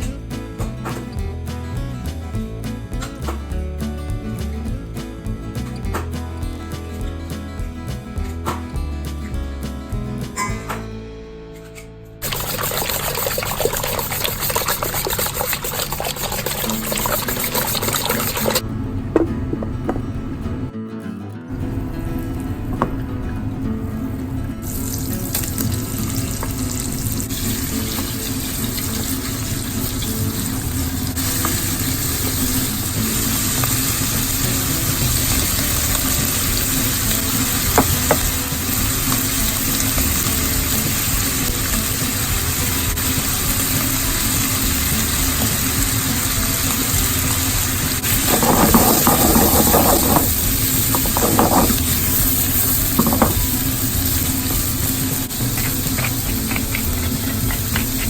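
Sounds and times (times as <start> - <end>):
food sizzling in a frying pan: 12.2 - 18.6, 24.7 - 58.0
clattering and scraping: 48.0 - 54.0.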